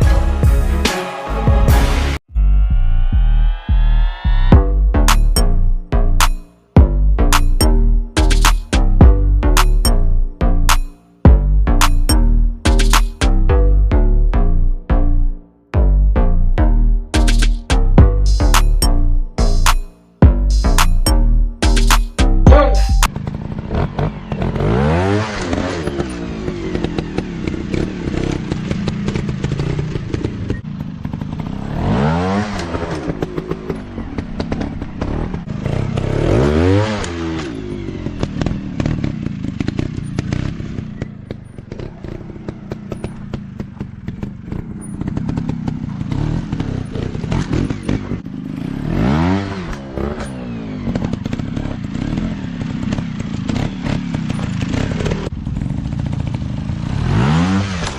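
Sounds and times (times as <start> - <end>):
dirt bike engines revving: 21.9 - 57.9.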